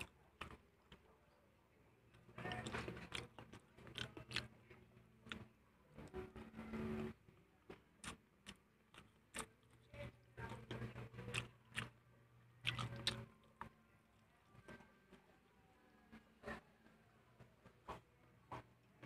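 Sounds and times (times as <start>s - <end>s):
wet chewing mouth sounds: 2.1s - 5.5s, 8.0s - 12.0s, 12.6s - 13.7s.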